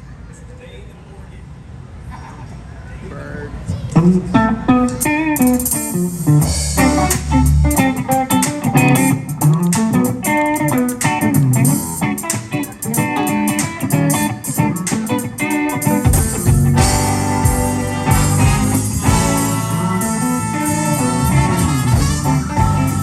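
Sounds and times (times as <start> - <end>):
bass guitar: 3.9 - 23.0
guitar picking a melody: 4.0 - 23.0
drums: 4.8 - 23.0.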